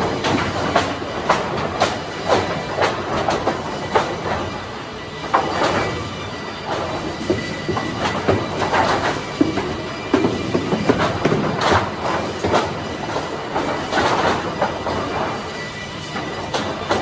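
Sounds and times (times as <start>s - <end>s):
wooden boards clattering: 8.0s - 15.4s.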